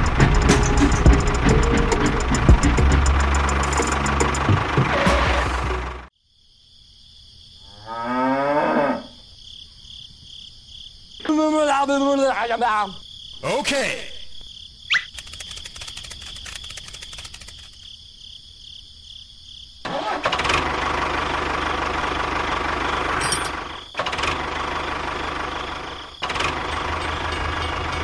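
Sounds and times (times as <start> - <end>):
tractor engine running: 0.0 - 6.1, 15.0 - 17.9, 19.9 - 28.0
faint fast clicking: 14.9 - 17.9.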